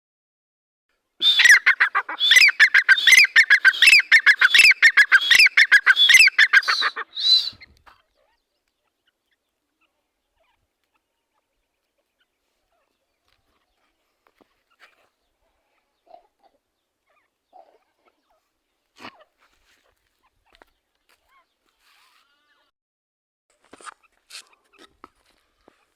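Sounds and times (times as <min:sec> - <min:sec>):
francolin calling: 0:01.2 - 0:07.6.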